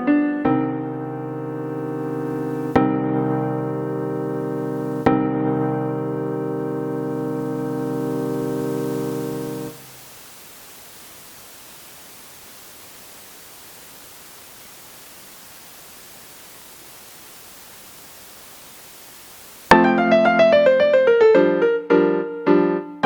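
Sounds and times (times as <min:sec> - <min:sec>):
electronic piano chord: 0:00.0 - 0:09.8, 0:19.7 - 0:23.0
steady line noise hiss: 0:00.0 - 0:22.0.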